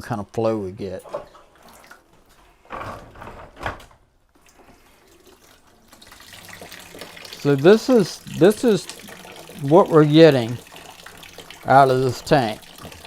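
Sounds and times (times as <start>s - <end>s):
water trickling into bucket: 4.4s - 13.0s.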